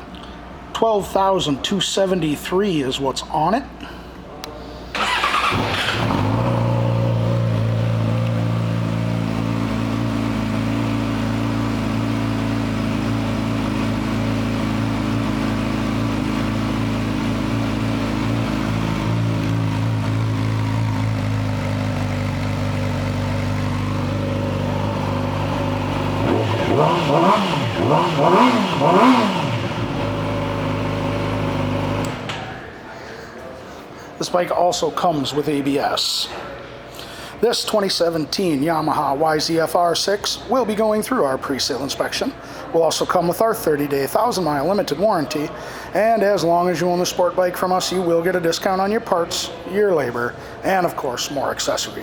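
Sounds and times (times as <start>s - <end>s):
motorcycle engine idling: 5.0s - 32.0s
motorcycle throttle blips: 5.0s - 32.5s.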